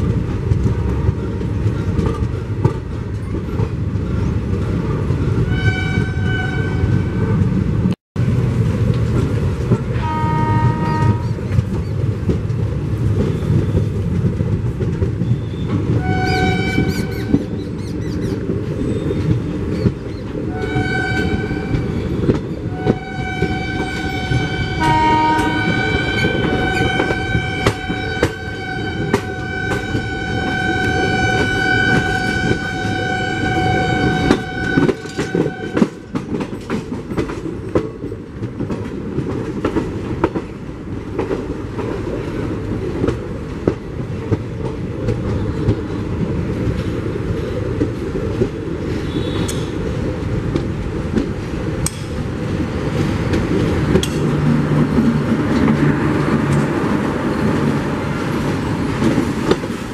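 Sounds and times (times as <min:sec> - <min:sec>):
wheels clicking over rail joints: 0:00.0 - 0:06.5, 0:08.3 - 0:59.9
train coach rumble: 0:00.0 - 0:59.9
locomotive horn: 0:05.5 - 0:07.5, 0:10.0 - 0:11.4, 0:15.9 - 0:17.4, 0:20.5 - 0:36.2, 0:49.0 - 0:49.8.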